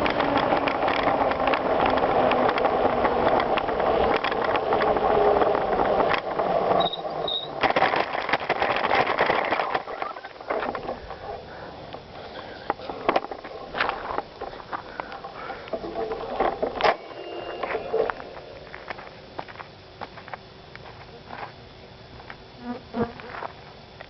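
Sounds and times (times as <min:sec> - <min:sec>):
bicycle tyres crunching gravel: 0:00.0 - 0:22.4, 0:23.2 - 0:24.0
bicycle parts rattling: 0:06.9 - 0:11.5.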